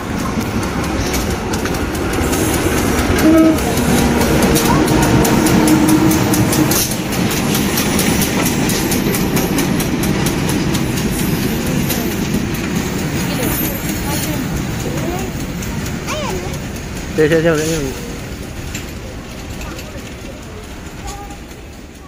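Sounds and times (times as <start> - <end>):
diesel locomotive engine: 0.0 - 22.0
wheels clattering over rail joints: 0.0 - 22.0
train horn: 3.0 - 7.0.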